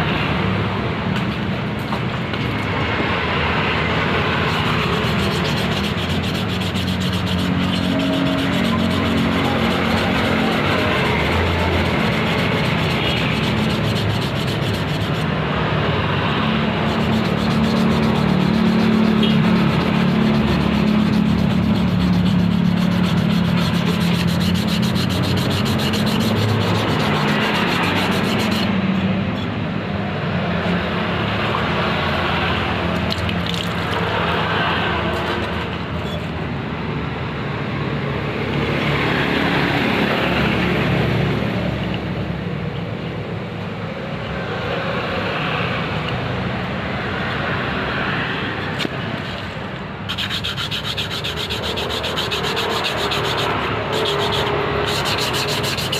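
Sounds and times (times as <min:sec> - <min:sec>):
hand sanding strokes: 0:04.2 - 0:15.4, 0:16.4 - 0:28.8, 0:50.1 - 0:55.9.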